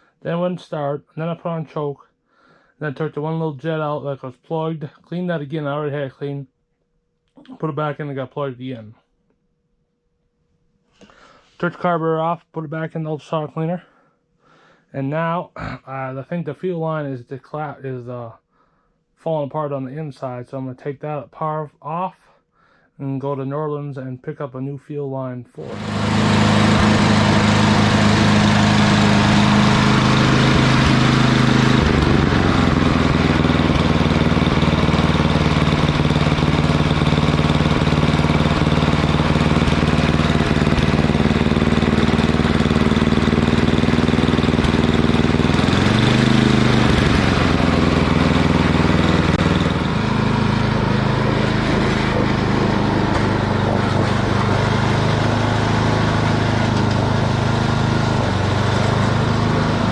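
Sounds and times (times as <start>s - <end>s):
small gasoline engine running: 25.6s - 59.9s.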